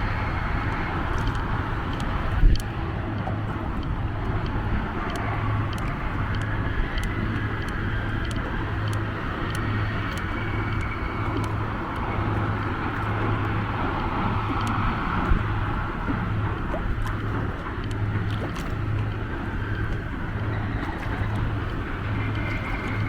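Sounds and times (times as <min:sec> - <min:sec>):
sharp ticks: 0:00.1 - 0:13.4.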